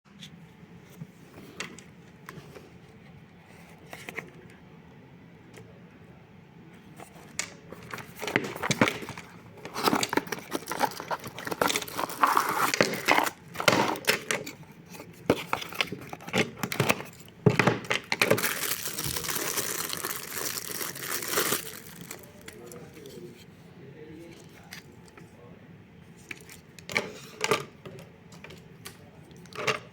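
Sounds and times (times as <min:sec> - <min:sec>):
plastic packaging crinkling: 0:07.8 - 0:14.6, 0:15.4 - 0:23.0.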